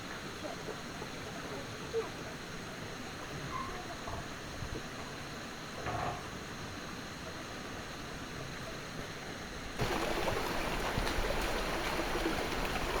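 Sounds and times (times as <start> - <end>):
stream water running: 9.8 - 13.0.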